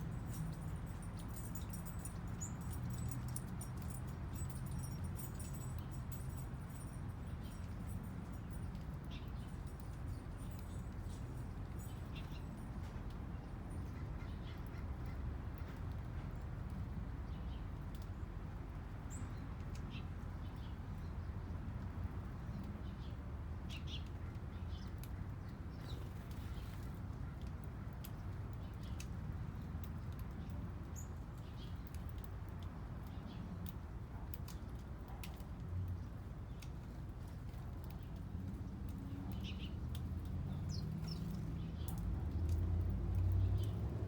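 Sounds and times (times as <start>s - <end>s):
small birds chirping: 0.3s - 12.7s, 29.9s - 33.8s, 35.2s - 43.9s.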